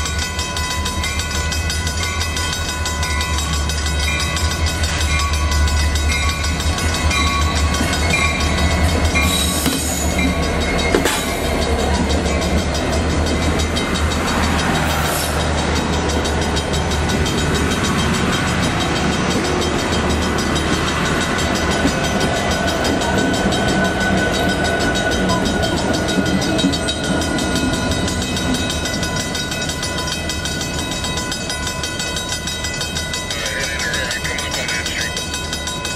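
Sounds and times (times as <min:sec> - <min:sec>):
steel wheels rolling on rail: 0:00.0 - 0:35.9
train passing with steady rumble: 0:00.0 - 0:35.9.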